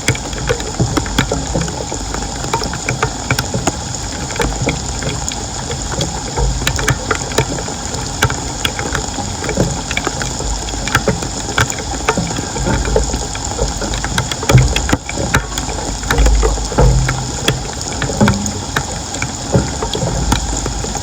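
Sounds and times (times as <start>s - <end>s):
floodwater running and splashing: 0.0s - 21.0s
steady low rumble: 16.2s - 19.2s.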